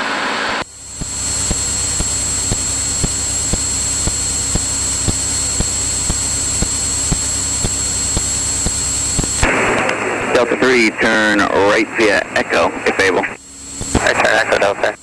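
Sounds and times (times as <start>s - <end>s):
airplane engine drone: 0.0s - 15.0s
thin high whine: 0.0s - 15.0s
regular clicking: 1.0s - 9.5s.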